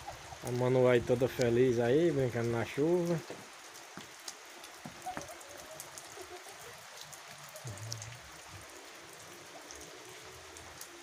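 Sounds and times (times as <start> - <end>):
light rain hissing: 0.0 - 11.0
raindrops ticking: 0.0 - 11.0.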